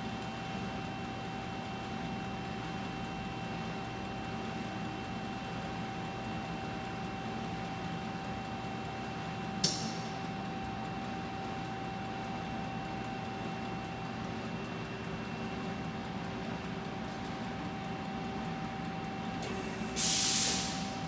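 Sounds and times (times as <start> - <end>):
sharp loud click: 9.6 - 10.2
faint regular ticking: 10.2 - 19.4
hiss of air: 19.4 - 21.0.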